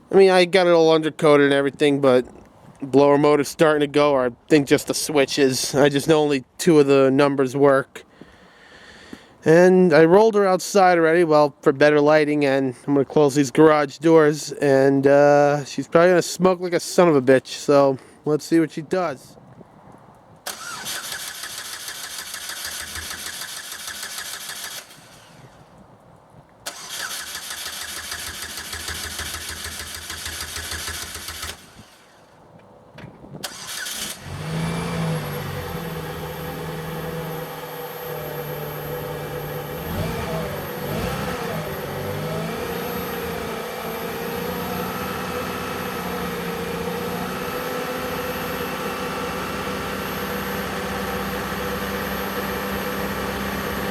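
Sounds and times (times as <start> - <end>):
car starter cranking: 20.5 - 25.5, 26.6 - 32.1, 33.4 - 46.0
car engine idling: 33.5 - 53.9.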